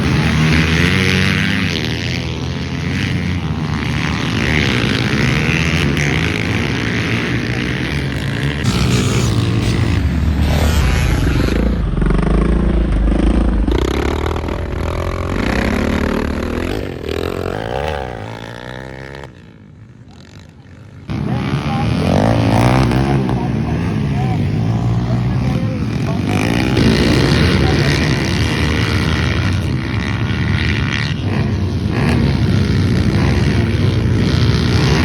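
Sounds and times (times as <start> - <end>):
dirt bike engines revving: 0.0 - 35.0.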